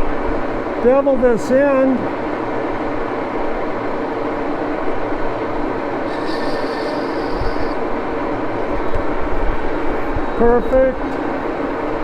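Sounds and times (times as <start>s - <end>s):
lathe gears whirring: 5.7s - 8.6s
high-pitched cutting whine: 5.8s - 8.1s.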